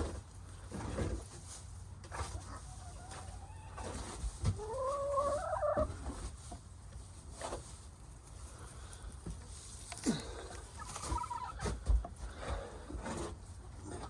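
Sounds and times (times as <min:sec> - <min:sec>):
hens clucking: 0:02.0 - 0:06.6, 0:10.4 - 0:14.0.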